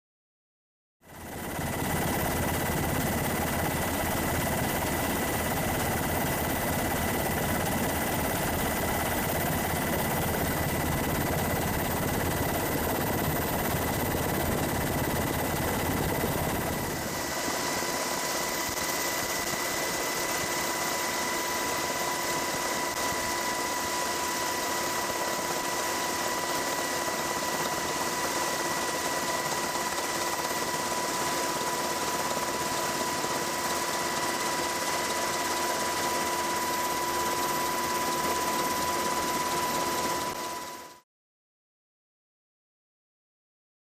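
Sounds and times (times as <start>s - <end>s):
steady whining tones: 1.2s - 32.5s.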